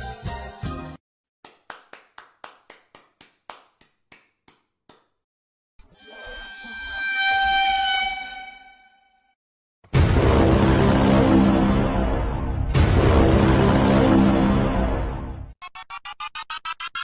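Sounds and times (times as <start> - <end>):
held high tone with overtones: 5.9 - 9.2.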